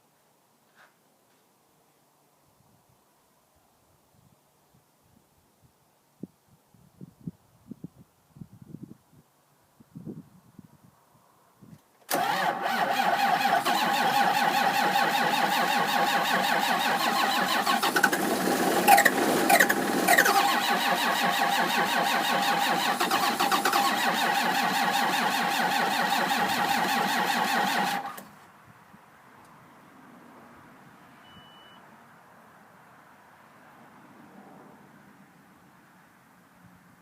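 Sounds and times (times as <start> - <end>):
tractor engine cranking with whine: 12.1 - 28.4.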